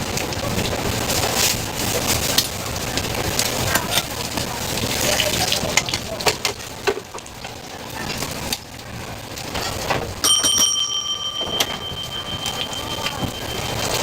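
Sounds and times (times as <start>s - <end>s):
ringing metal strike: 10.2s - 14.0s.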